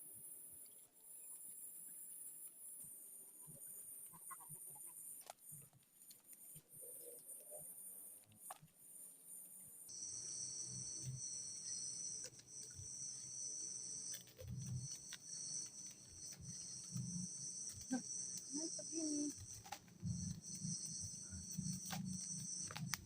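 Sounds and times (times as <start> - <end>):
insects chirring: 6.3 - 23.0.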